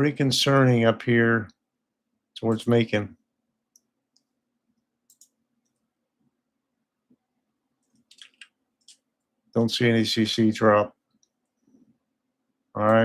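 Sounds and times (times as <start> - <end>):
computer mouse clicks: 3.7 - 4.4, 5.0 - 5.9, 7.8 - 9.3, 11.1 - 11.7.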